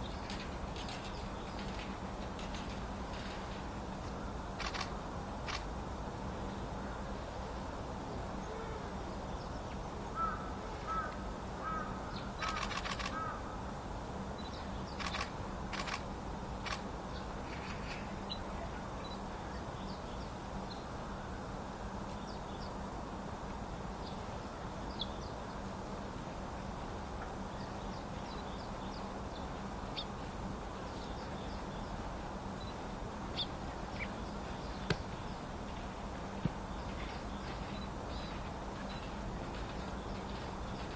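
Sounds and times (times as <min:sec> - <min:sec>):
low background hum: 0:00.0 - 0:40.9
sharp flutters or clicks: 0:04.6 - 0:04.9, 0:12.4 - 0:13.2, 0:15.0 - 0:16.0
harsh crow-like bird calls: 0:10.2 - 0:13.6.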